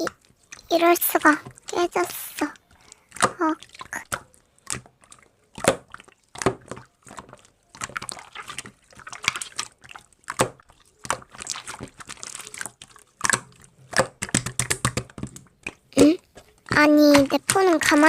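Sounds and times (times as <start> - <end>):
slime clicking and popping: 0.0 - 18.0.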